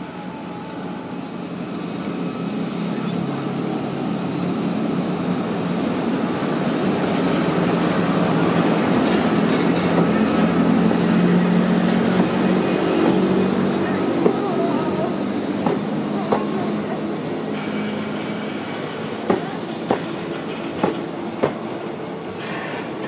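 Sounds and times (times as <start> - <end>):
freight train rolling rumble: 0.0 - 23.0.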